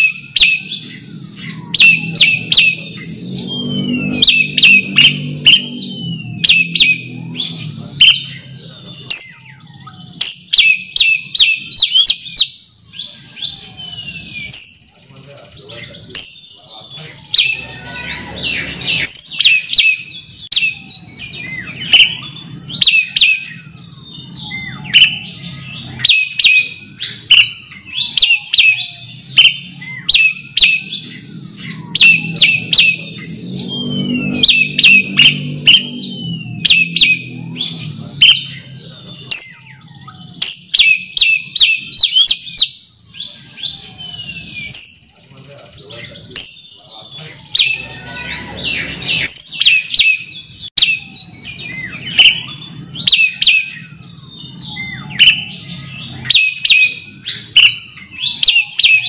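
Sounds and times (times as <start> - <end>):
bird singing whistled notes: 0.0 - 59.0.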